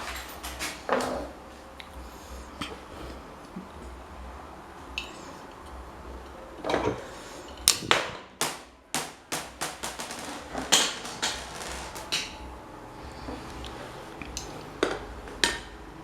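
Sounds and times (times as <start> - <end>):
hammer striking metal: 7.7 - 12.4.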